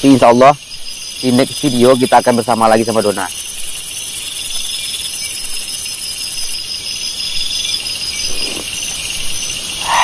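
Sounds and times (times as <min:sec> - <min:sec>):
insects trilling: 0:00.0 - 0:10.0
pulsing insect call: 0:00.0 - 0:10.0
high-pitched insect buzzing: 0:07.4 - 0:10.0.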